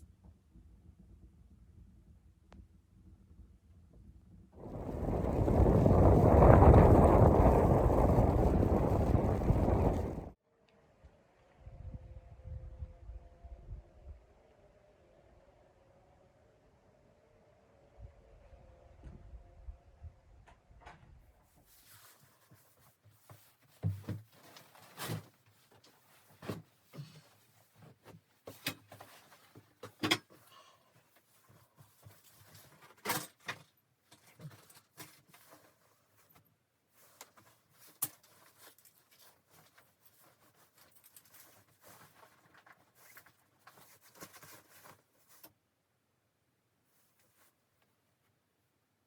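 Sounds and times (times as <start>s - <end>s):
objects being handled: 21.5s - 45.6s.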